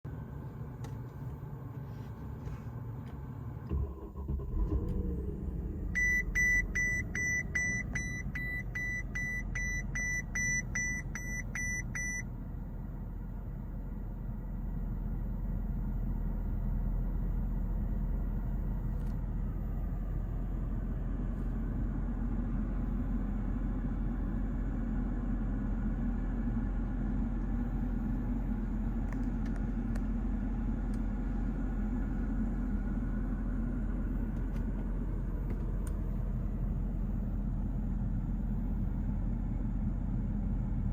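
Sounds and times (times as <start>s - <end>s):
car engine starting and idling: 0.1s - 40.9s
car warning chime beeping: 5.9s - 12.3s.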